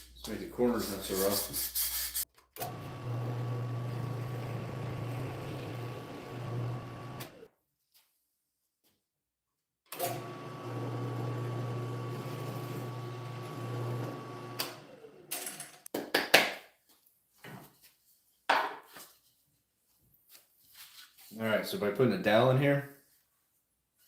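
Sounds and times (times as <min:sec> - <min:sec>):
electric sander running: 0:02.7 - 0:07.4.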